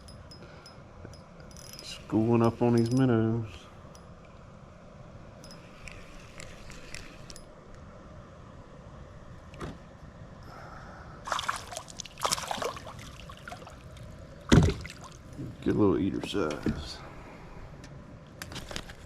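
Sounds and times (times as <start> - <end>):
fish rattling and splashing: 11.3 - 13.8.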